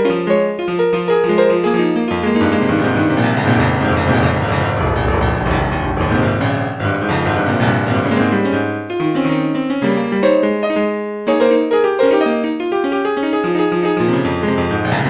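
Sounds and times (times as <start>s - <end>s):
piano music: 3.2s - 7.1s.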